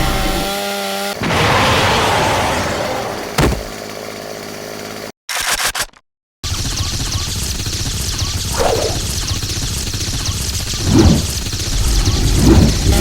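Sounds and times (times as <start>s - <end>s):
choppy stuttering fragments: 8.0s - 13.0s
noisy blast: 10.7s - 13.0s
steady pitched buzz: 10.8s - 13.0s.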